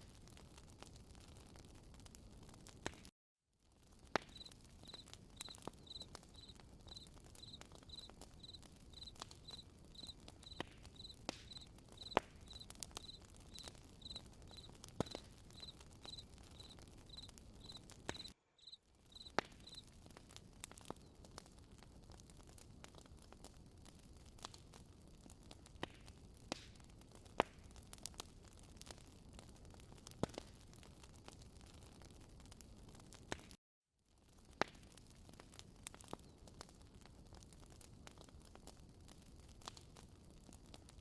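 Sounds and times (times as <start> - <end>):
campfire crackling and popping: 0.0 - 3.1, 3.7 - 41.0
cricket chirping: 4.3 - 19.8.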